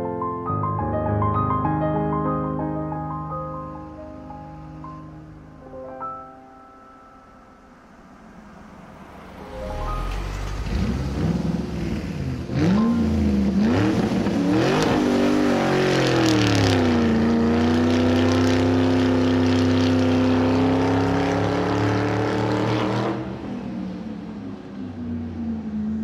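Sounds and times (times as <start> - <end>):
vehicle engine revving: 8.1 - 23.7.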